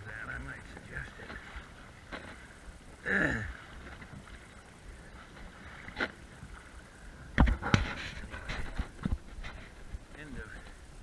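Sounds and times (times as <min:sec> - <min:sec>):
sharp knocks: 0:07.4 - 0:08.0.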